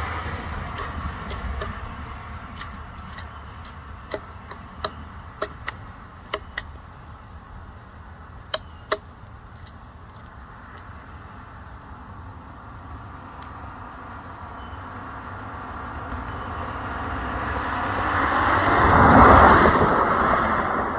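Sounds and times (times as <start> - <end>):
woodpecker pecking wood: 0.1 - 7.3, 8.3 - 11.1.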